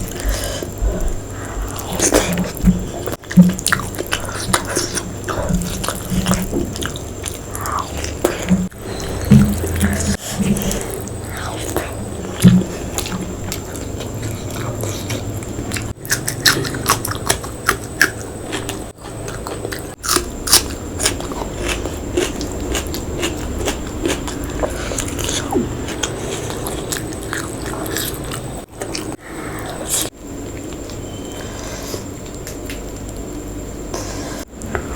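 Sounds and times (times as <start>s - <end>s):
person chewing: 0.0s - 31.0s
biting crunches: 1.6s - 30.9s.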